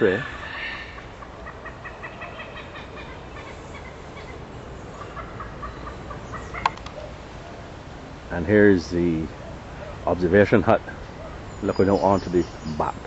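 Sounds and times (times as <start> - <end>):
bird clucking calls: 0.0 - 7.8, 8.4 - 13.0
outdoor background noise: 0.0 - 13.0
sharp click: 6.6 - 7.0.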